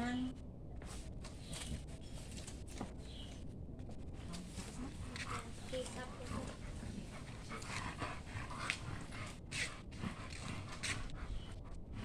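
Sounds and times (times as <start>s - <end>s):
dog panting: 4.2s - 12.0s.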